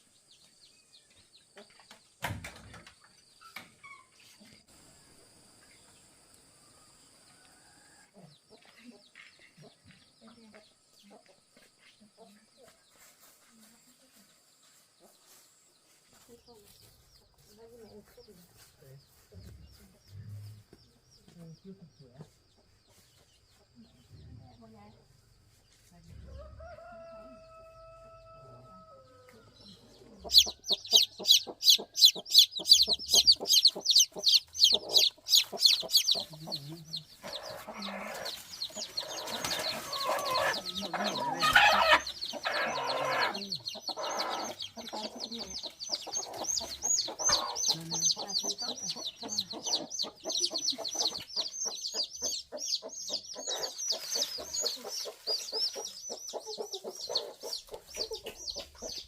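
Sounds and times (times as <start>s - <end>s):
chickens clucking: 8.2s - 13.8s, 14.7s - 24.9s, 29.5s - 59.0s.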